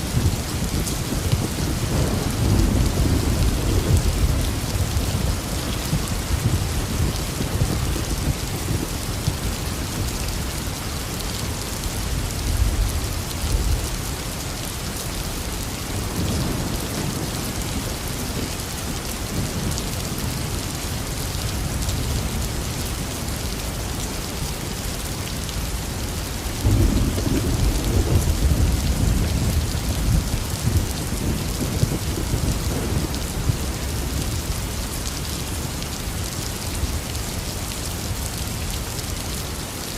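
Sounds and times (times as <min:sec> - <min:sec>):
heavy rain: 0:00.0 - 0:39.9
thunder rumbling: 0:00.1 - 0:10.0, 0:26.6 - 0:34.4.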